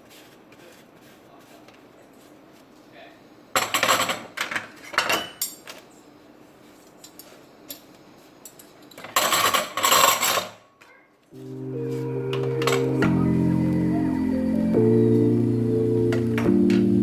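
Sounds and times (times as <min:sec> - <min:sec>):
dishes and cutlery clattering: 0:03.6 - 0:05.8, 0:08.5 - 0:10.7.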